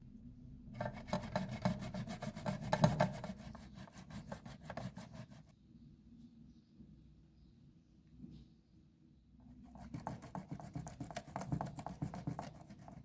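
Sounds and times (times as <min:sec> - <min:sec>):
food rasping on a hand grater: 0:00.8 - 0:05.4, 0:09.7 - 0:13.0.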